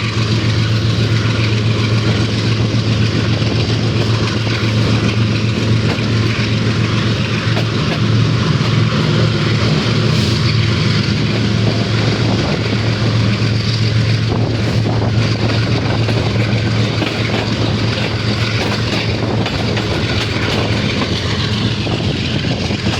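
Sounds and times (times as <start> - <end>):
diesel locomotive engine roar: 0.0 - 22.9
moving train rushing: 0.0 - 22.9.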